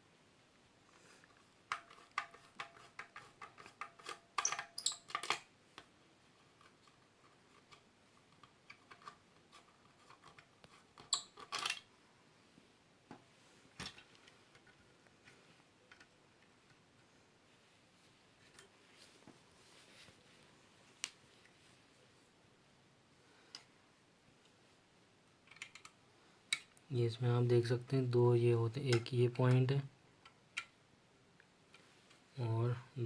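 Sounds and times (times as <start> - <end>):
screwdriver clicks and squeaks: 1.7 - 5.5, 11.0 - 11.8.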